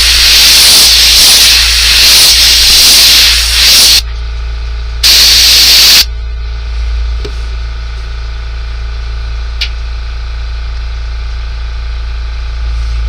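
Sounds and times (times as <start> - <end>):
airbrush spraying hiss: 0.0 - 4.0
steady low hum: 0.0 - 13.0.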